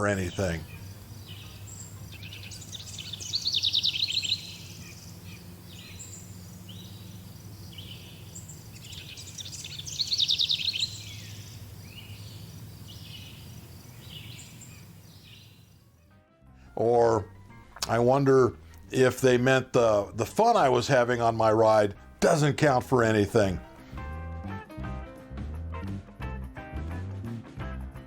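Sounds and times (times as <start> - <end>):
birds chirping: 0.0 - 15.9, 16.8 - 24.0
bird trilling loudly: 0.3 - 15.6
steady low hum: 0.6 - 15.4.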